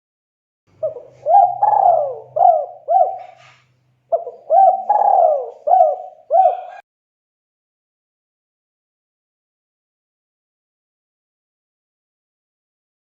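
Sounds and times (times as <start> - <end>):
dove cooing: 0.8 - 6.8.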